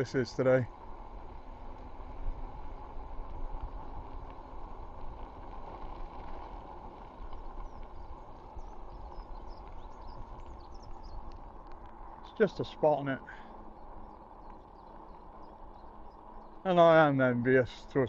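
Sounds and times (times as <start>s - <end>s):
bike tyres rumbling on path: 0.0s - 18.0s
bird chirps: 7.2s - 11.5s, 12.2s - 17.1s.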